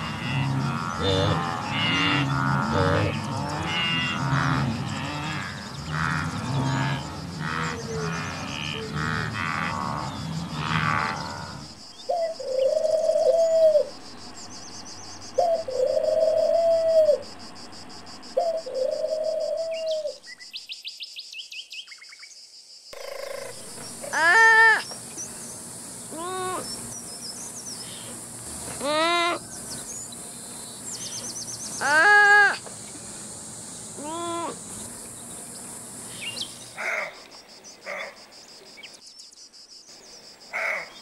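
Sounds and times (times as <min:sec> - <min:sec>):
wildebeest grunting and braying: 0:00.0 - 0:17.4, 0:23.0 - 0:25.4, 0:26.1 - 0:27.0, 0:27.8 - 0:33.1, 0:33.8 - 0:35.4
dove cooing: 0:07.4 - 0:17.5, 0:18.4 - 0:20.2, 0:23.0 - 0:27.0, 0:27.8 - 0:30.2, 0:31.0 - 0:32.7, 0:33.9 - 0:35.2.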